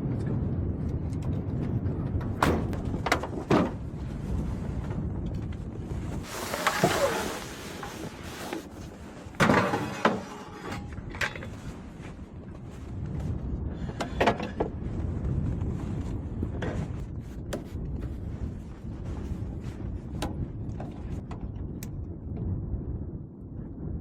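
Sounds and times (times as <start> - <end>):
low rumble: 0.0 - 24.0
hard knocks and thunks: 2.2 - 3.9.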